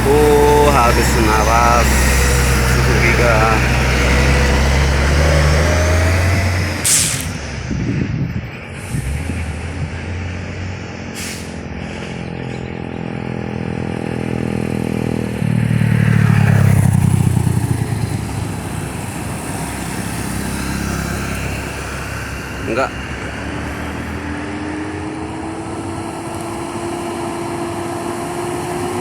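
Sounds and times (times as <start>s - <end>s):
diesel truck engines labouring: 0.0s - 29.0s
short hiss: 6.8s - 7.4s, 11.2s - 11.5s.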